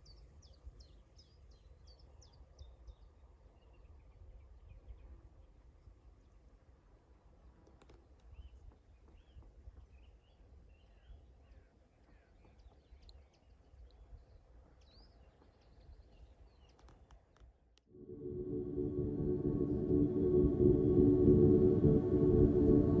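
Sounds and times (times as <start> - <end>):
soft ambient music: 17.9 - 23.0
low steady rumble: 18.0 - 23.0.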